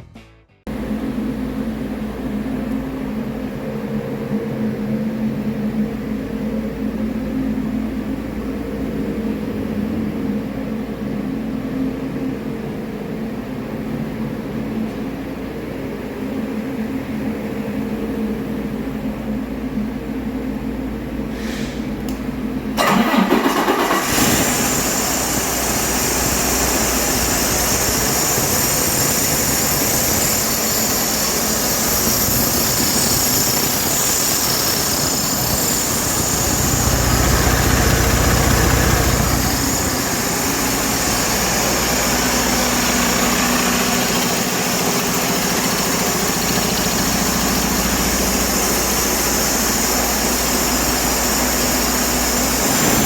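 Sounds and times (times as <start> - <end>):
diesel engine idling: 20.2 - 53.0.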